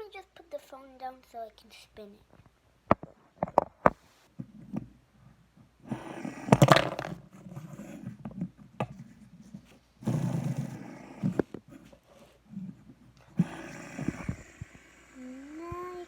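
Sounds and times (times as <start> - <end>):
phone being set down: 6.6 - 7.2.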